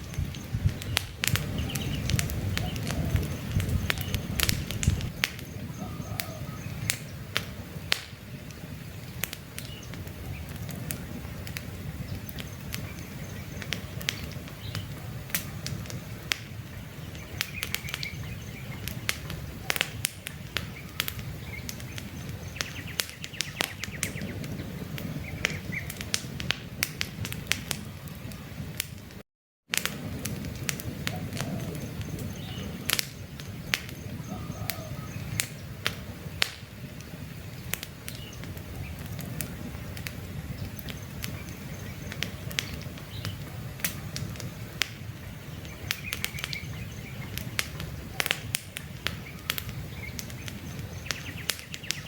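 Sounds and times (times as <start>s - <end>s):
faint bird chirps: 0.0s - 7.2s, 33.6s - 35.4s, 49.1s - 52.0s
campfire crackling and popping: 0.0s - 52.0s
low rush of flames: 0.0s - 52.0s.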